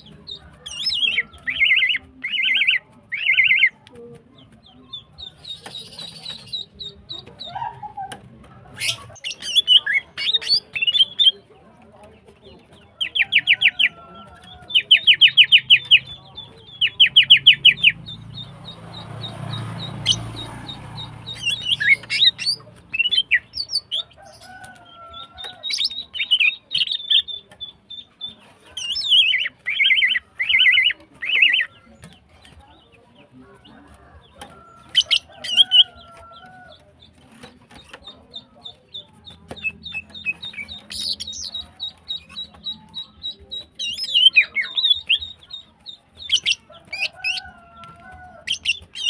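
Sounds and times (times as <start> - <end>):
bird rattling calls and chips: 0.0 - 8.1.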